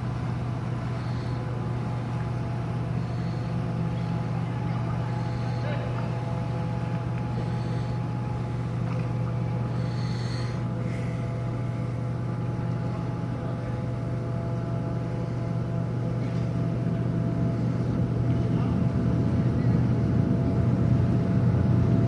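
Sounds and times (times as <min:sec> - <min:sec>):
ship machinery droning: 0:00.0 - 0:22.0.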